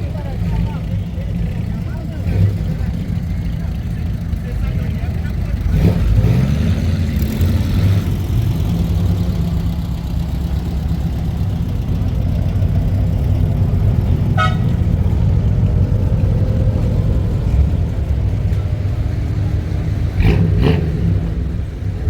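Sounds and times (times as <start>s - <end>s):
car engine rumble: 0.0s - 22.0s
car horn toot: 14.3s - 14.9s.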